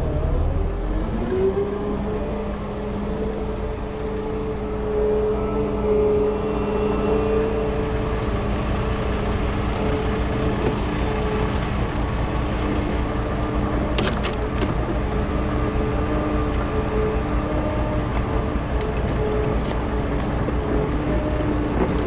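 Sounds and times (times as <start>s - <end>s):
diesel engine humming: 0.0s - 22.0s
metal clanks: 14.0s - 15.3s.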